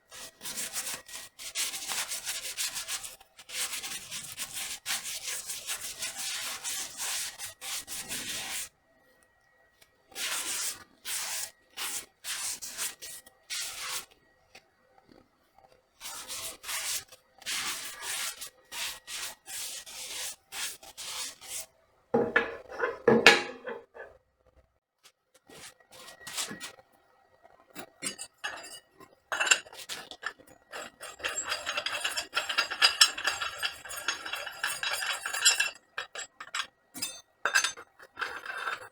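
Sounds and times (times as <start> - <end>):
hand tool rubbing workpiece: 22.2 - 24.1, 28.0 - 38.9.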